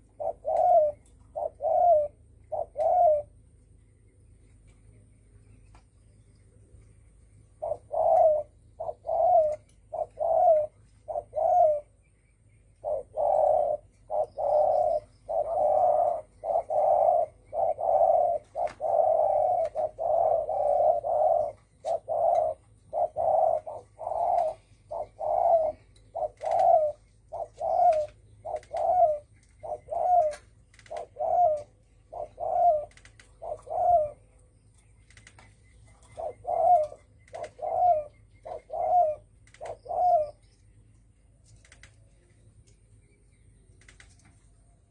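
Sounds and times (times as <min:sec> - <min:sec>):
dove cooing: 0:00.0 - 0:03.5, 0:07.4 - 0:12.0, 0:12.7 - 0:34.6, 0:35.2 - 0:40.4.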